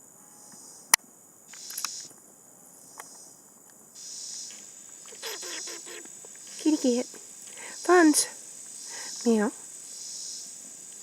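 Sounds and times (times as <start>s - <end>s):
insects buzzing: 0.0s - 11.0s
sharp click: 1.5s - 2.1s, 4.4s - 6.1s.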